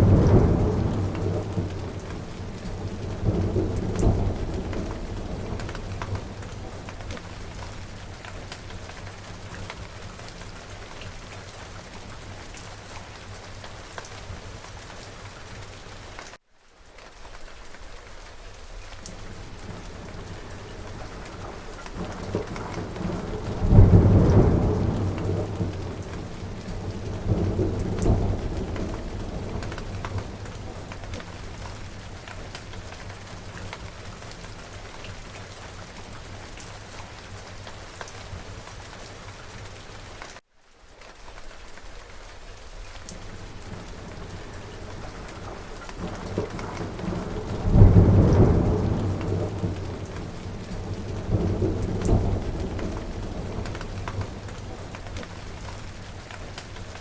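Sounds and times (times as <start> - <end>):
thunder rumbling: 0.0 - 12.5, 19.2 - 36.2, 43.2 - 57.0
steady rain: 0.0 - 57.0.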